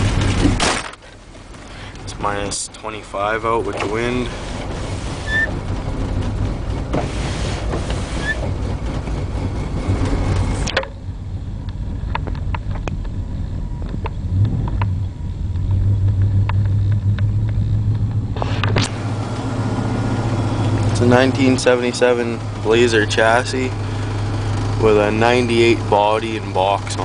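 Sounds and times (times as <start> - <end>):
vee eight engine idling: 1.2 - 27.0.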